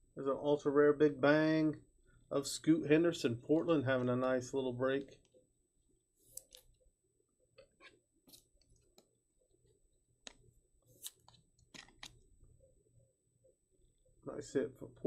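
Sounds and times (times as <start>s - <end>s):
trading cards being handled: 6.2s - 6.7s, 10.3s - 12.2s.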